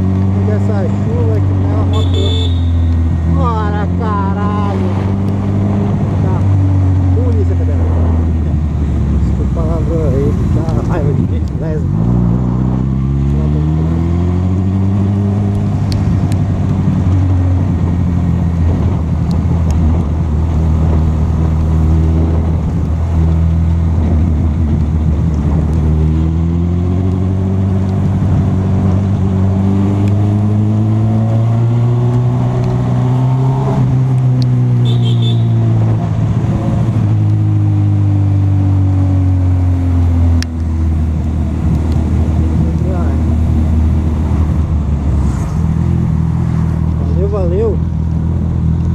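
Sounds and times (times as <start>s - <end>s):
wind and road noise: 0.0s - 48.9s.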